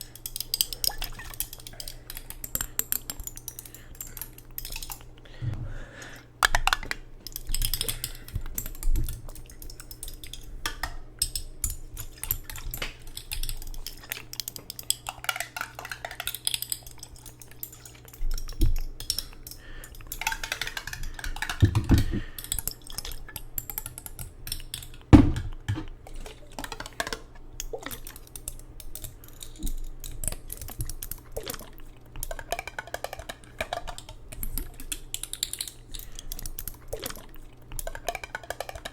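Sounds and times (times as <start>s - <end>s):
tapping and clicking on hard objects: 6.4s - 26.0s, 27.9s - 37.2s, 37.8s - 38.9s
dishes clinking: 32.2s - 34.9s, 37.8s - 38.9s.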